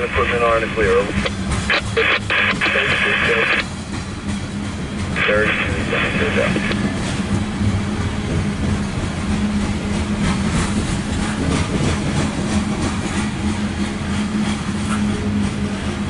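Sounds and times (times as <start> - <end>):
constant low hum: 0.0 - 12.2
freight train rolling past: 0.0 - 16.0.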